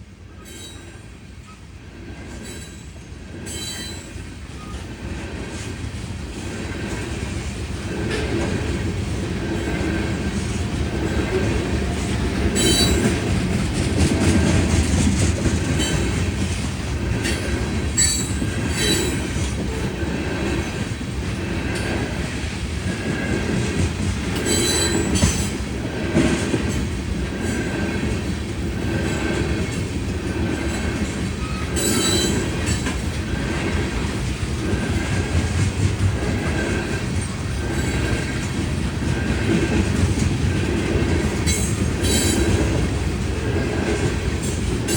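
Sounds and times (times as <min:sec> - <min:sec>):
train wheels rumbling on rail: 0:00.0 - 0:44.9
high wheel squeals: 0:12.4 - 0:13.2, 0:24.4 - 0:25.4, 0:31.4 - 0:32.8.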